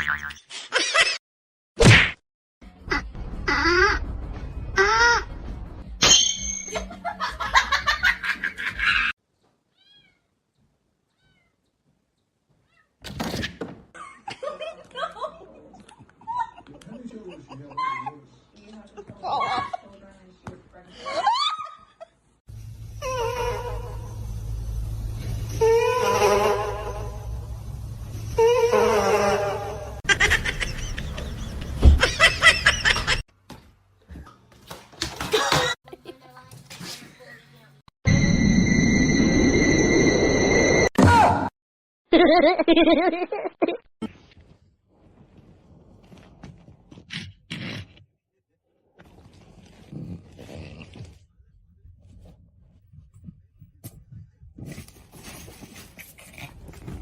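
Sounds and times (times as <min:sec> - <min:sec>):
person laughing in bursts: 0:30.0 - 0:33.2, 0:42.1 - 0:43.8.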